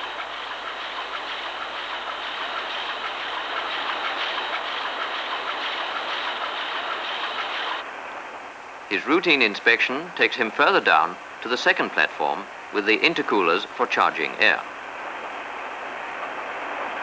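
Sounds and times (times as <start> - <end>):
marine diesel engine clatter: 0.0 - 7.8.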